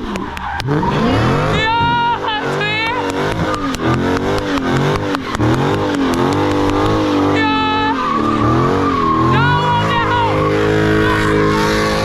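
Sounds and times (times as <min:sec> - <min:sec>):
car engine revving: 0:00.0 - 0:12.0
engine crackles: 0:00.0 - 0:12.0
high-pitched squeal: 0:07.0 - 0:12.0.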